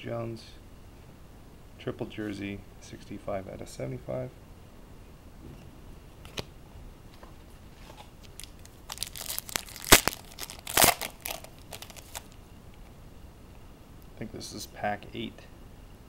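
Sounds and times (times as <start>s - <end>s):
wrapper crinkling: 7.9s - 12.4s
card pack wrapper tearing: 8.2s - 12.4s.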